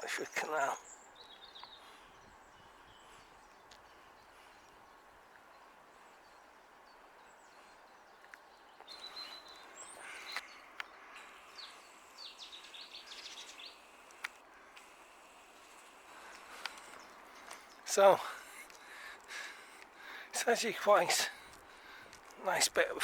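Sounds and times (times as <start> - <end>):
birds chirping and whistling: 0.0 - 14.4
faint outdoor ambience: 0.0 - 23.0.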